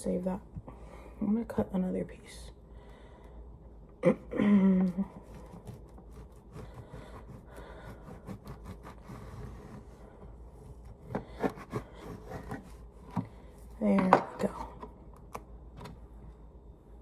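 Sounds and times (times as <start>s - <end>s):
bread knife sawing crusty loaf: 5.1s - 10.0s, 10.6s - 12.9s.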